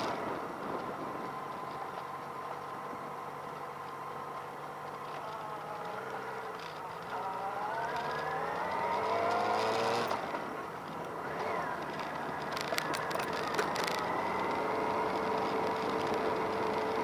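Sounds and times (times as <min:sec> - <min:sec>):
motorcycle engine revving: 0:05.2 - 0:17.0.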